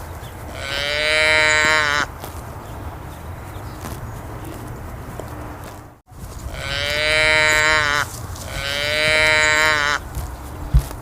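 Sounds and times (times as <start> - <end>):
outdoor rumble: 0.0 - 11.0
cow mooing: 0.5 - 2.1, 6.5 - 10.0.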